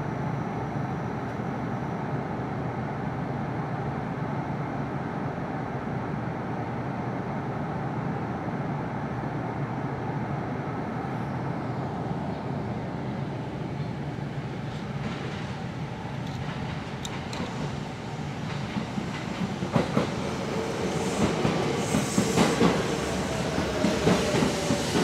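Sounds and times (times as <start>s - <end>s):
train wheels rumbling on rails: 12.4s - 25.0s
train brakes squealing: 19.8s - 25.0s.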